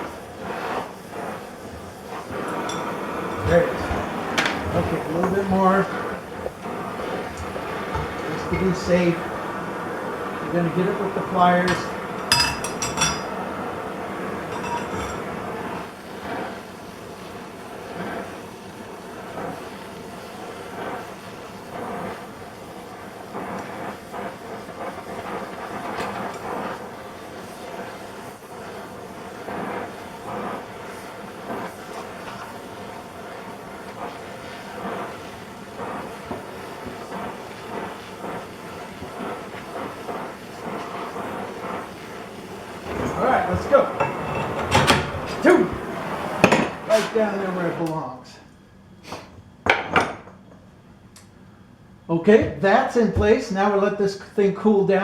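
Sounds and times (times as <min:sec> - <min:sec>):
gas torch flame hissing: 0:00.0 - 0:55.0.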